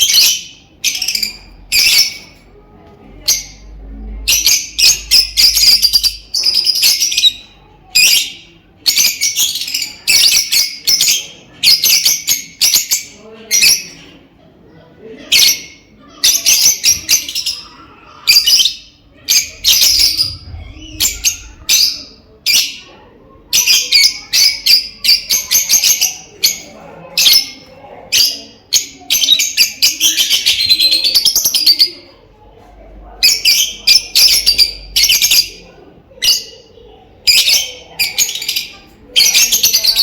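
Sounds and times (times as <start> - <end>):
lovebirds chattering shrill chirps: 0.0 - 2.4, 4.3 - 14.0, 15.3 - 22.9.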